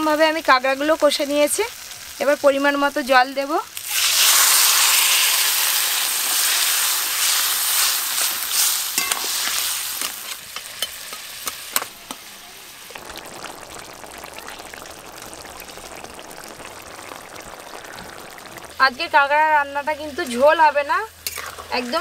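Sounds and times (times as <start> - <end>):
oil sizzling in a wok: 0.0 - 22.0
spatula scraping a wok: 3.8 - 12.3, 21.2 - 21.8.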